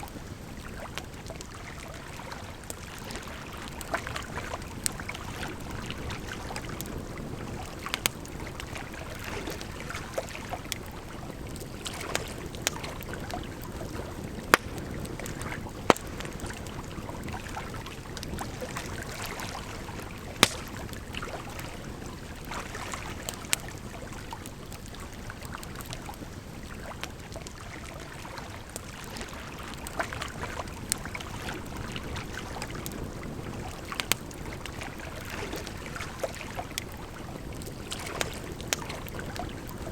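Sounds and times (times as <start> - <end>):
wood fire crackling and popping: 2.6 - 19.1, 19.9 - 21.3, 29.8 - 35.0, 35.6 - 39.9.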